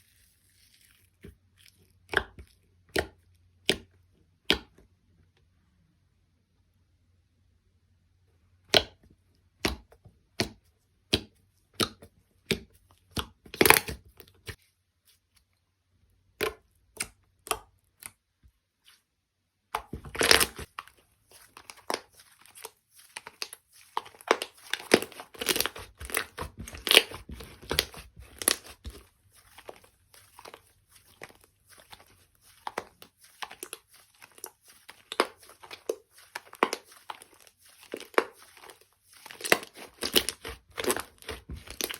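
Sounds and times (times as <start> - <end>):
slime crackling crunch: 19.8 - 41.9.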